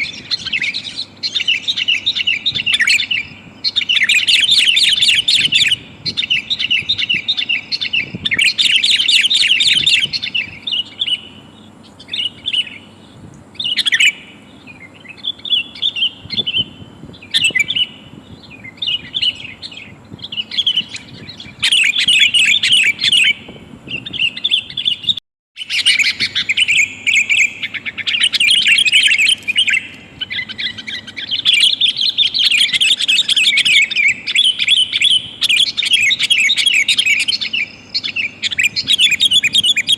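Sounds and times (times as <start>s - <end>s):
bulbul chirping: 13.6s - 39.9s.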